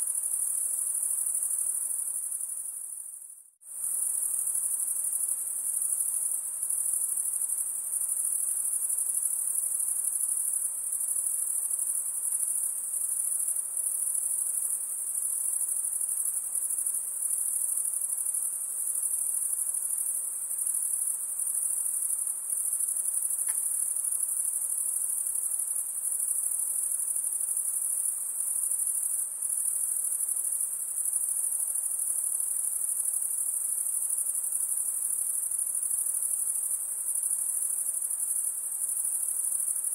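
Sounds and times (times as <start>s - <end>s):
insects trilling: 3.7s - 39.9s
faint click: 23.4s - 23.7s.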